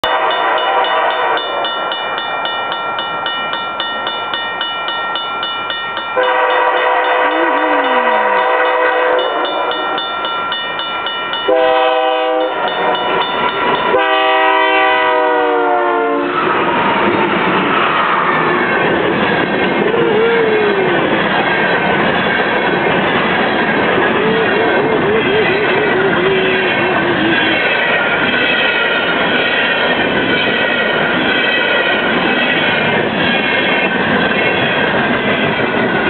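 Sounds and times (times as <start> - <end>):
locomotive air horn blasts: 0.0 - 1.6, 6.2 - 10.0, 11.5 - 13.0, 13.9 - 16.4.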